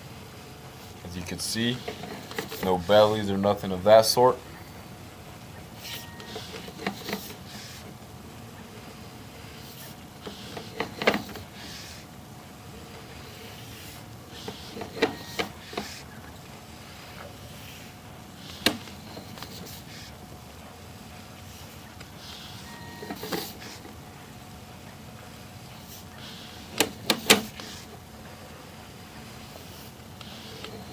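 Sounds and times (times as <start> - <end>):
faint steady hum: 0.0 - 30.9
cable knocking and rubbing: 1.7 - 3.1.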